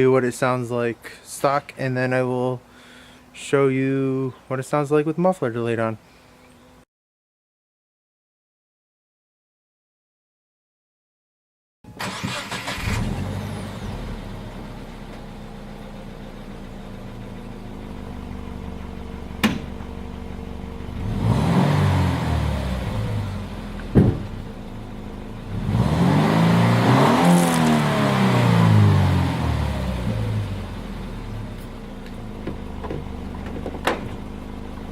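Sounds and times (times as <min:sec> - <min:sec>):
engine cranking: 0:12.0 - 0:13.1
car engine idling and revving: 0:12.1 - 0:34.9.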